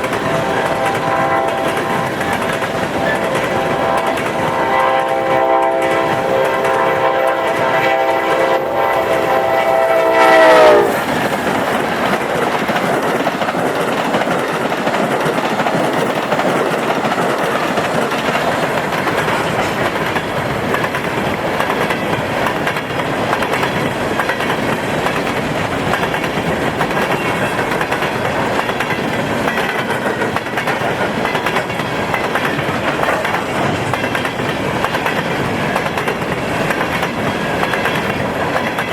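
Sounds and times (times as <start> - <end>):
train wheels clattering on rails: 0.0 - 38.9
train horn chord: 0.2 - 11.0.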